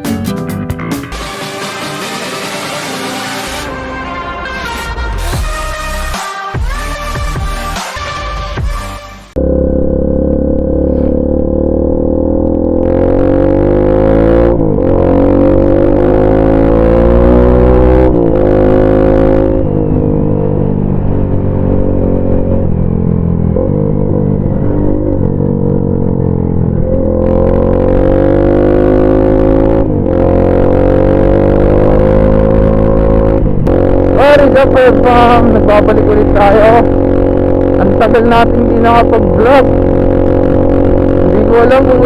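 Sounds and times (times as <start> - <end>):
motorcycle engine shifting gears: 9.4 - 42.0.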